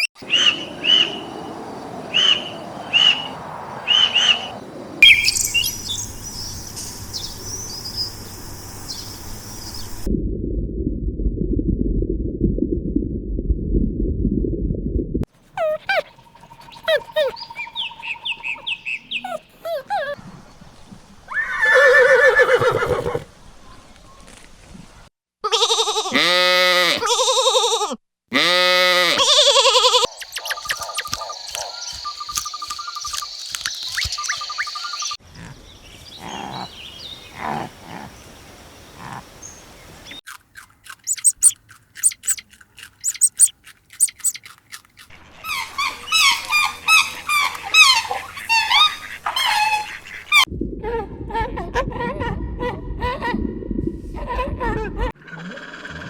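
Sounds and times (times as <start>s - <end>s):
birds chirping: 0.0s - 10.1s, 15.5s - 22.5s, 29.9s - 40.3s, 41.0s - 44.5s
high thin bird twittering: 0.0s - 10.1s, 15.6s - 20.2s, 30.1s - 37.6s, 41.0s - 44.6s.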